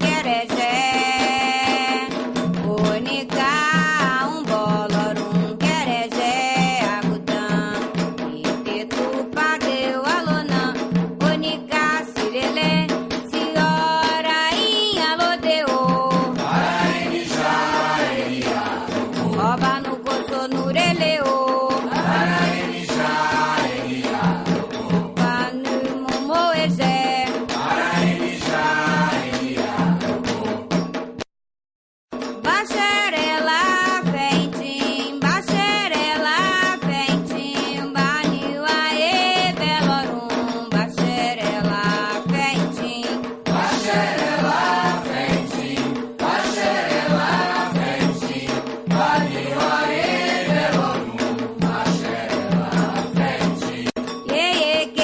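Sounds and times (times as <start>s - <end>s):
hand percussion: 0.0s - 31.3s, 32.1s - 55.0s
voices singing a chant: 12.5s - 30.8s, 33.2s - 54.0s
voices chanting: 16.4s - 19.4s, 22.0s - 25.1s, 27.6s - 30.0s, 43.6s - 53.9s.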